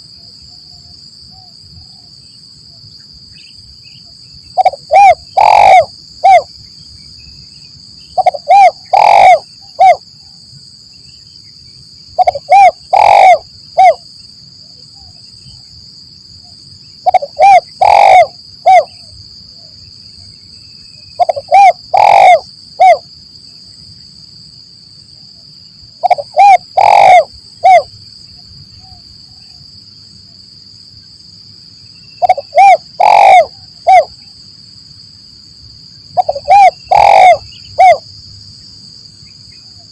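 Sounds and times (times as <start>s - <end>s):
dove cooing: 4.6s - 6.5s, 8.2s - 10.0s, 12.2s - 14.0s, 17.0s - 19.1s, 21.2s - 23.0s, 26.0s - 27.9s, 32.2s - 34.2s, 36.2s - 38.0s.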